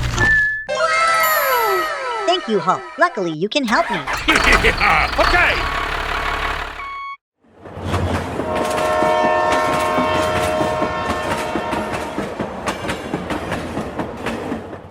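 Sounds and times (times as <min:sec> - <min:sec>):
train horn chord: 0:08.4 - 0:12.2.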